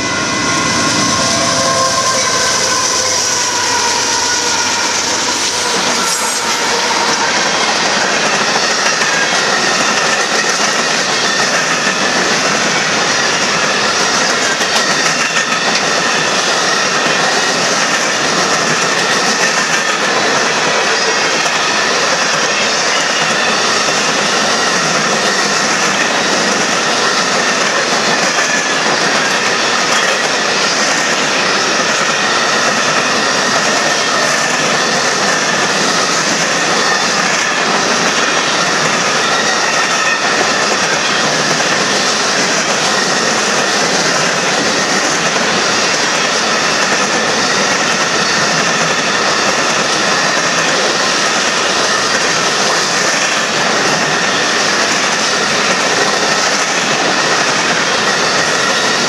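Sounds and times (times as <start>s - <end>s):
thin high wheel squeal: 0.0s - 10.0s
diesel locomotive passing: 0.0s - 59.0s
train wheels on rails: 0.0s - 59.0s.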